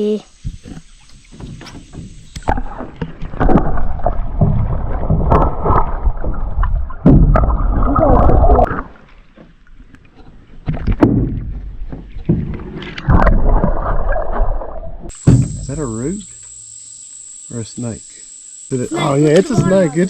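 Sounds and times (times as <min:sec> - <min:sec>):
water rushing against boat hull: 0:00.3 - 0:15.8.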